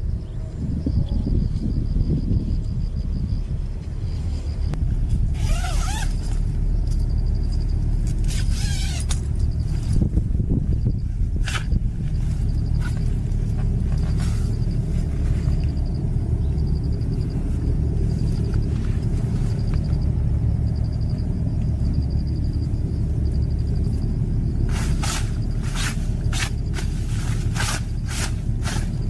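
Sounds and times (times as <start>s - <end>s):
steady low rumble: 0.0s - 29.0s
sharp crunching or scraping: 4.3s - 10.2s, 11.3s - 15.8s, 24.5s - 29.0s.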